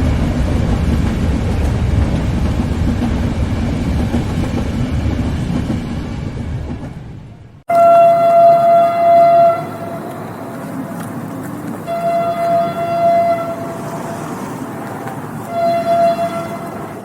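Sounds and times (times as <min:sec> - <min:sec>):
passing train rumble: 0:00.0 - 0:17.0
train horn blasts: 0:07.7 - 0:11.0, 0:11.8 - 0:14.4, 0:15.4 - 0:17.0.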